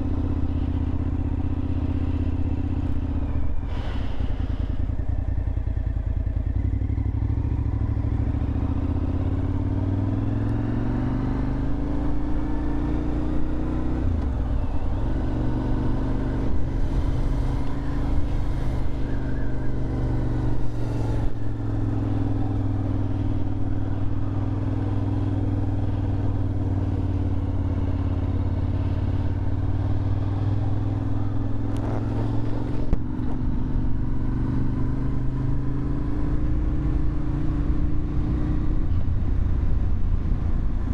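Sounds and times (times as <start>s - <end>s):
motorcycle engine while riding: 0.0s - 40.9s.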